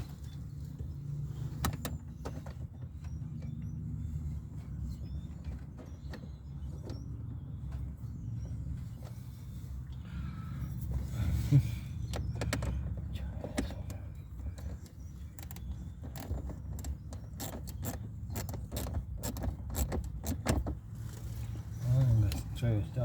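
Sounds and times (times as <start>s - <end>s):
steady low hum: 6.8s - 19.0s.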